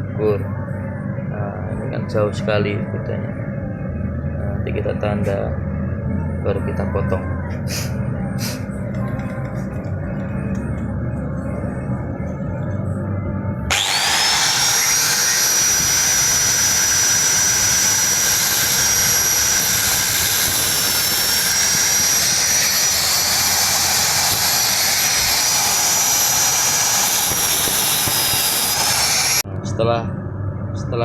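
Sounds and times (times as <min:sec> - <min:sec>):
electric grinder whining: 0:13.7 - 0:29.4.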